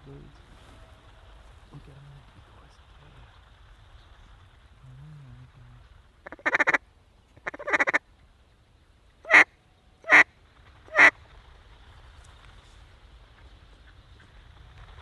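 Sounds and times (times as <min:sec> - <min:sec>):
duck quacking: 0:06.2 - 0:06.8, 0:07.4 - 0:08.0, 0:09.3 - 0:10.2, 0:10.9 - 0:11.1.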